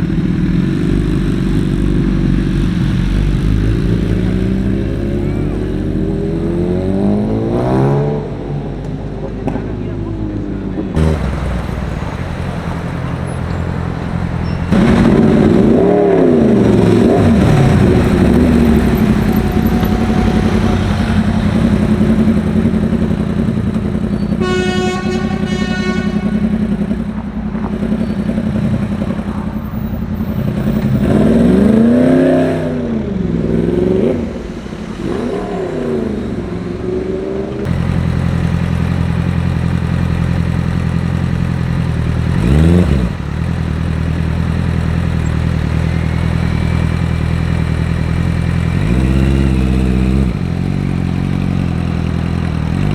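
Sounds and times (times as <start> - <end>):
car engines revving and passing: 0.0 - 52.9
car horn: 11.0 - 16.0, 16.6 - 32.0.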